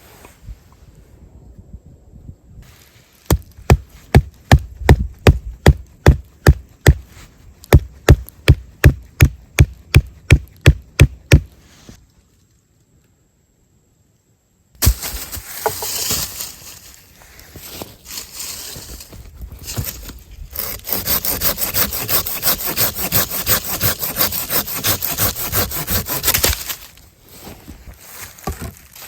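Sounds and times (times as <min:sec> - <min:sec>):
hatchet chopping wood: 0:03.3 - 0:07.1, 0:07.7 - 0:11.5, 0:14.8 - 0:15.1, 0:20.6 - 0:26.7.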